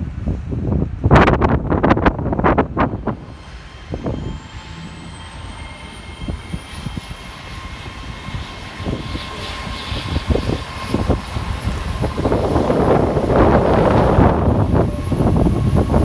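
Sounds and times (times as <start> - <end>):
train passing through platform: 0.0 - 16.0
high whine: 1.8 - 16.0
low rumble: 9.9 - 16.0.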